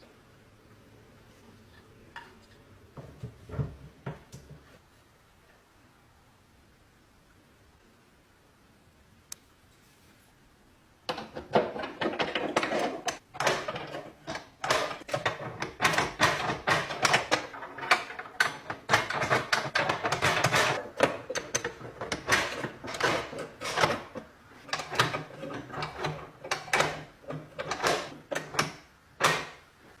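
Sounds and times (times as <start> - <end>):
lock clicking and rattling: 11.1 - 29.7.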